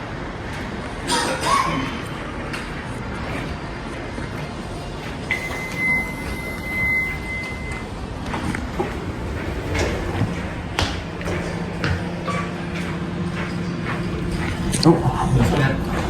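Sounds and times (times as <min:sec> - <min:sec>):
elevator doors sliding: 0:04.4 - 0:16.0
high electronic elevator tone: 0:05.3 - 0:14.7.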